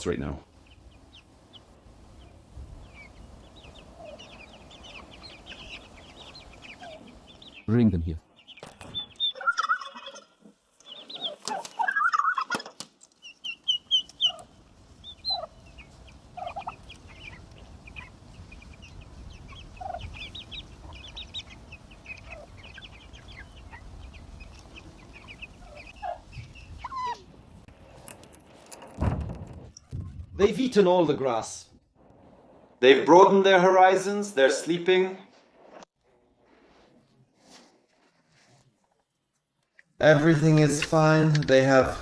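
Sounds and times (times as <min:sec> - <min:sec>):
poults peeping: 0:00.0 - 0:28.1
adult turkey clucking: 0:02.9 - 0:07.6, 0:08.9 - 0:27.4.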